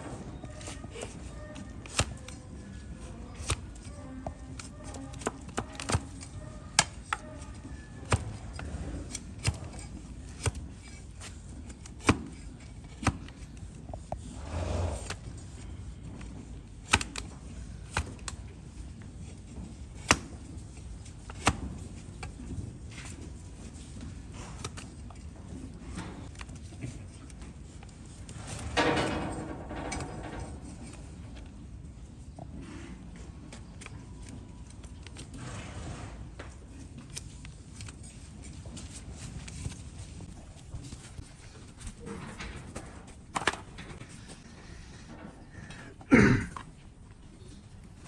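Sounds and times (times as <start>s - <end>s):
blade scraping hoof: 0.0s - 20.6s.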